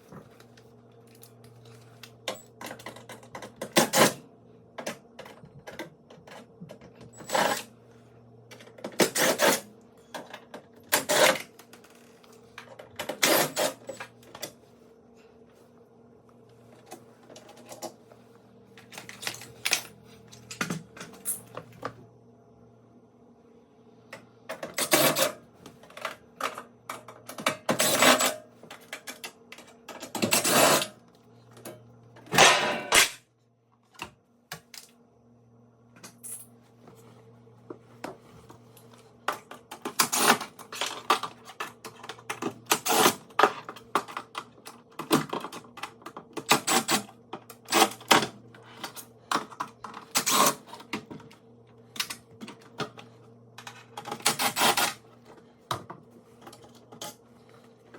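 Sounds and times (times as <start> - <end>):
faint steady hum: 0.0 - 57.9
tools clicking and scraping parts: 8.5 - 14.6, 18.8 - 21.8, 24.5 - 31.0, 39.3 - 51.3, 51.9 - 55.4.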